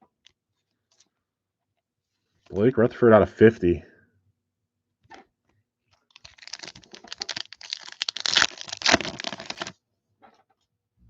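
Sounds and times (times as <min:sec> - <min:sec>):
foil wrapper tearing and crinkling: 0:06.1 - 0:09.8.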